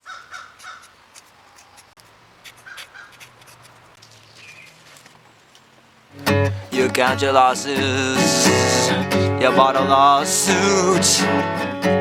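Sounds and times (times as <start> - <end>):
bird short calls: 0.0 - 3.4, 4.2 - 6.1.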